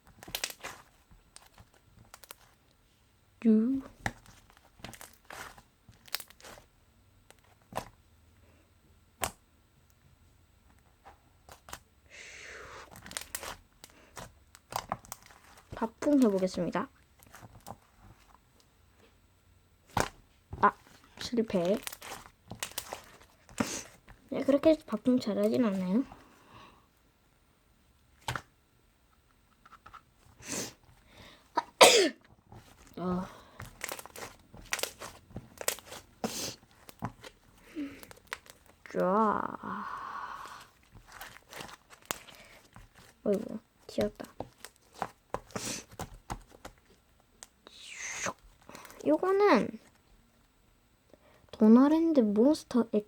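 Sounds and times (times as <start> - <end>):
slime tearing crackle: 0.2 - 2.5, 4.0 - 6.6, 12.9 - 16.6, 19.9 - 24.8, 33.6 - 39.6, 40.4 - 46.7.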